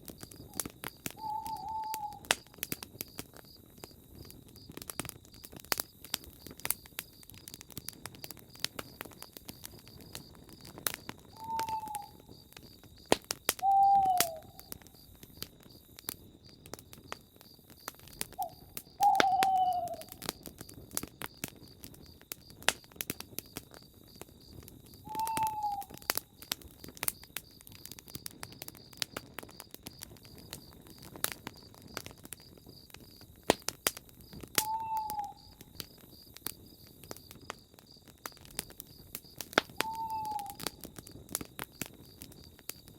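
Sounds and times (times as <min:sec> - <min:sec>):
campfire crackling and popping: 0:00.0 - 0:42.9
crickets chirring: 0:00.0 - 0:42.9
owl hooting: 0:01.2 - 0:02.3, 0:11.4 - 0:12.2, 0:13.6 - 0:14.7, 0:18.4 - 0:20.2, 0:25.1 - 0:26.0, 0:34.6 - 0:35.6, 0:39.8 - 0:40.6.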